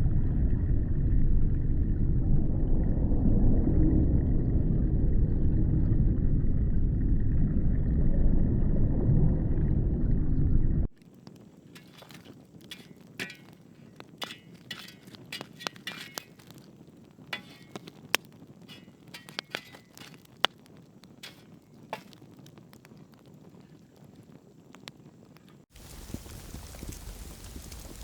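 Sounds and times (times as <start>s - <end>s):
fire crackling: 10.8s - 28.0s.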